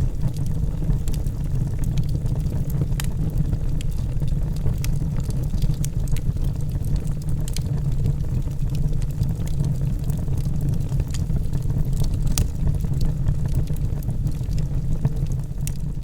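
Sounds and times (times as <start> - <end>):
logs burning with crackles: 0.0 - 16.0.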